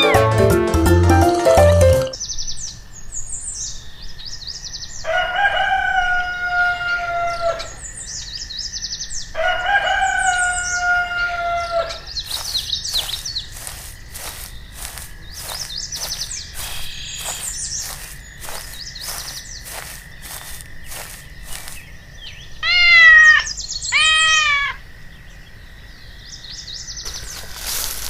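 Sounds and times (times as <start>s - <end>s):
rooster crowing: 5.0s - 7.8s, 9.4s - 12.4s
small birds chirping: 11.6s - 28.0s.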